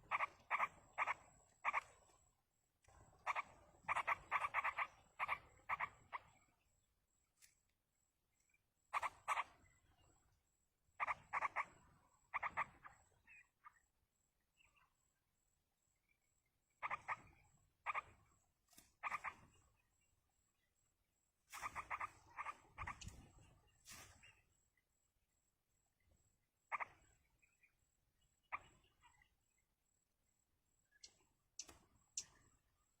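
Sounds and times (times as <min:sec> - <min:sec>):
bird calling with rasping notes: 0:00.0 - 0:02.3, 0:03.0 - 0:07.2, 0:08.8 - 0:15.1, 0:15.8 - 0:30.0, 0:30.7 - 0:33.0.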